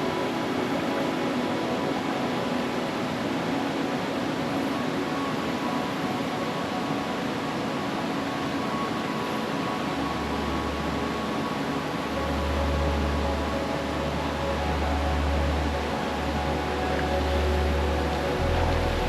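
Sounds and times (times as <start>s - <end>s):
faint sustained tones: 0.0s - 19.0s
low hum: 12.2s - 19.0s.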